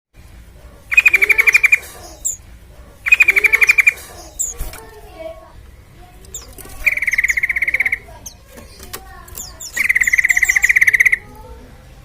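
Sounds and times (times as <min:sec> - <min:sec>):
bird rattling trills: 0:00.9 - 0:02.4, 0:03.0 - 0:05.1, 0:06.2 - 0:11.2
short high bird chirps: 0:09.4 - 0:11.2.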